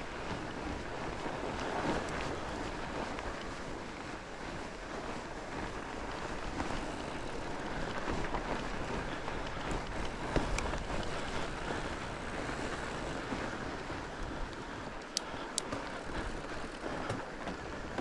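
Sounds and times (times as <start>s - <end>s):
bike rolling on a trail: 0.0s - 18.0s
wind noise on microphone: 0.0s - 18.0s.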